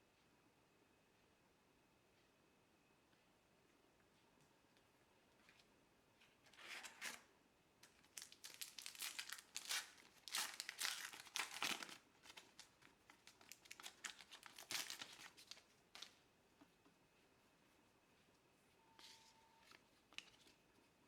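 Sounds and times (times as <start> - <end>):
wrapper crinkling and tearing: 7.8 - 16.1.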